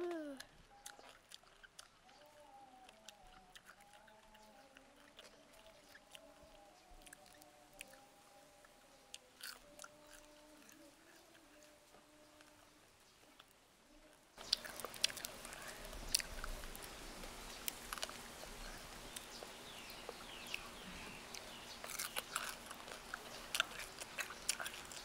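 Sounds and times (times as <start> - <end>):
crunching fried crickets: 14.4 - 25.0.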